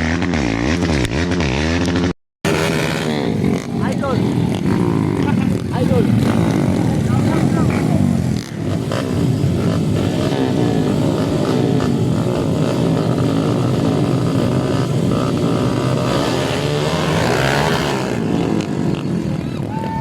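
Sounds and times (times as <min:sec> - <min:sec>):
motocross bike engines revving: 0:00.0 - 0:20.0.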